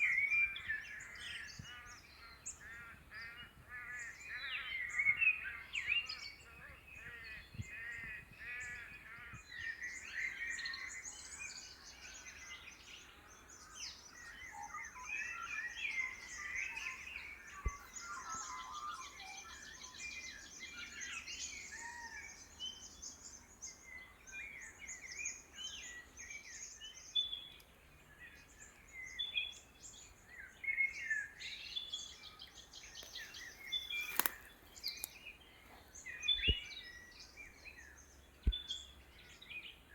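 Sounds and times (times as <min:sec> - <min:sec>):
bird chirps: 0:09.6 - 0:39.9.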